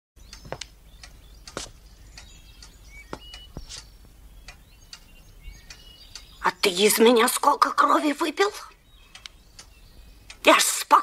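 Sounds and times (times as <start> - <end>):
small birds chirping: 0.2 - 11.0
sharp clicks: 0.3 - 5.1, 9.1 - 10.4.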